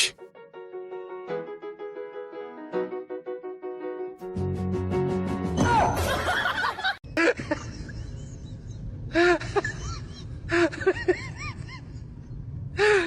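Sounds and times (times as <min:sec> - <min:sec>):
person laughing: 0:06.3 - 0:12.0.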